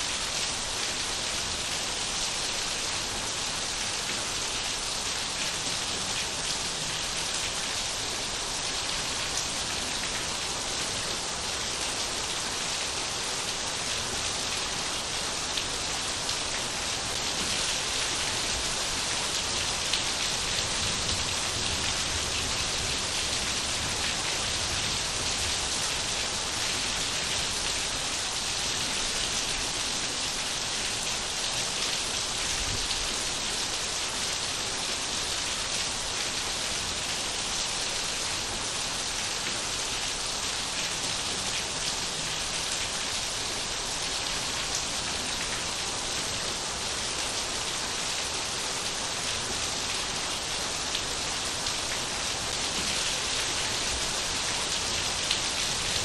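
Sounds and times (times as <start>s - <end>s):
rain pattering on surfaces: 0.4s - 56.0s.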